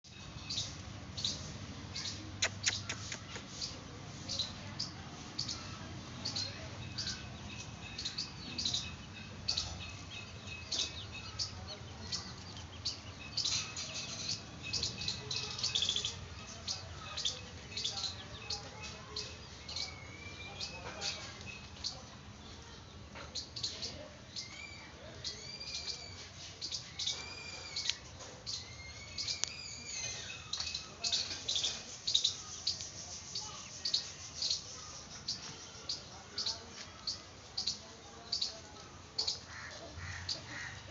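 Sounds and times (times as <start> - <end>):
birds chirping: 0.0 - 40.9
rising and falling bird calls: 27.0 - 31.0.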